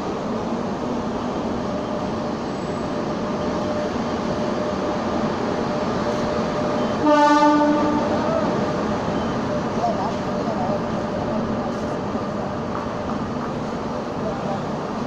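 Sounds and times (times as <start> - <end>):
train wheels rumbling on rails: 0.0 - 15.0
train horn blowing: 6.9 - 8.4.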